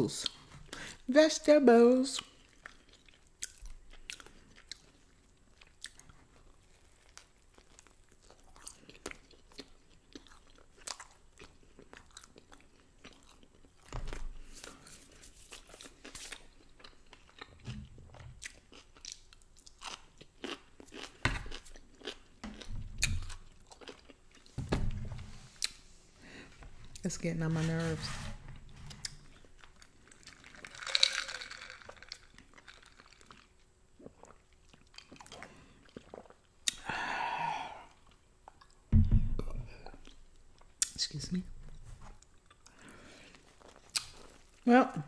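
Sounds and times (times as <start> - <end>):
person chewing food: 2.2 - 24.6, 28.8 - 41.0, 41.7 - 44.6
dull thumps: 38.9 - 39.8.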